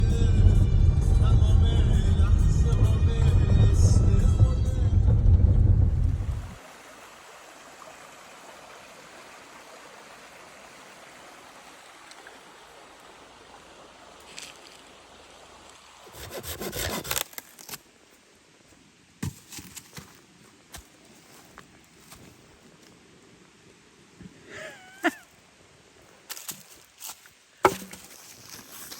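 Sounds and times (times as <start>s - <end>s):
steady outdoor hiss: 6.4s - 28.9s.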